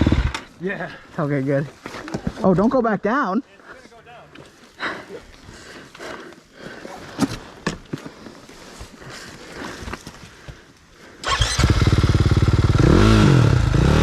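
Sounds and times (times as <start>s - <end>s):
dirt bike engine revving: 0.0s - 0.5s, 11.2s - 14.0s.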